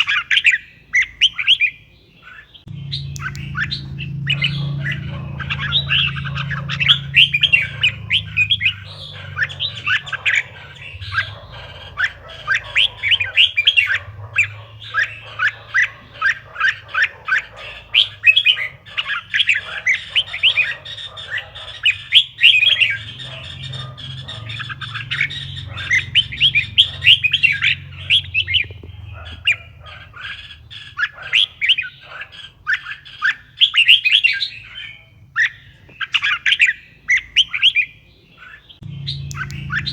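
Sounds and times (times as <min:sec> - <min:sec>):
bird singing sharp chirps: 0:02.6 - 0:31.9, 0:38.7 - 0:39.9
steady low hum: 0:02.7 - 0:20.7, 0:21.8 - 0:30.9, 0:38.8 - 0:39.9.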